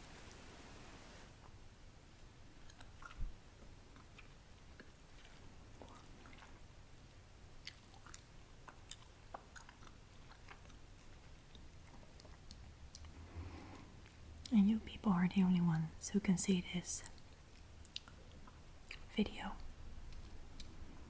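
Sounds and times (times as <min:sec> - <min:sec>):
crunchy chewing: 0:02.1 - 0:14.5, 0:17.0 - 0:19.1.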